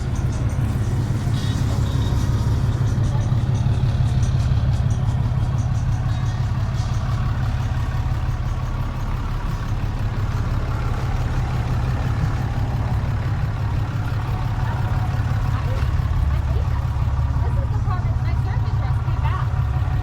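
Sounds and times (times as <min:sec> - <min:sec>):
truck engine droning: 0:00.0 - 0:20.0.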